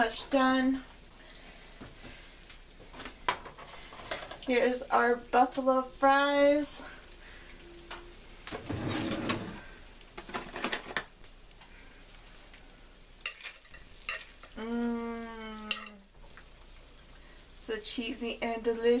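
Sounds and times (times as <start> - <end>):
person humming mmm: 14.6 - 15.8.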